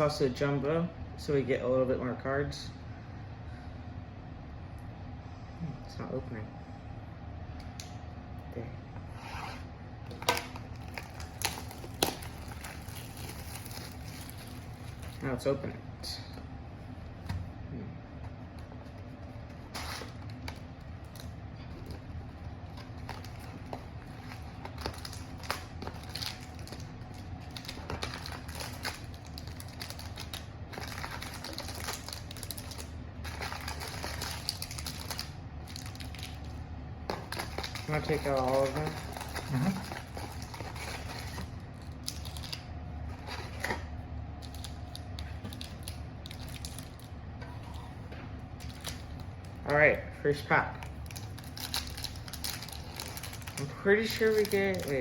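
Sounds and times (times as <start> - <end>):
packaging rubbing and scraping: 9.1 - 15.2, 19.5 - 20.5, 37.1 - 43.8, 51.1 - 55.0
cardboard box and packs handled: 10.1 - 15.3, 18.8 - 47.0, 51.0 - 55.0.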